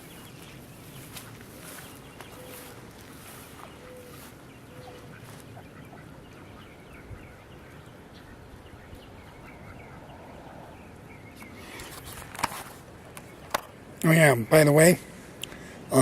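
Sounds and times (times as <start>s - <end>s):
outdoor background noise: 0.0s - 16.0s
ducks quacking faintly: 1.0s - 11.8s.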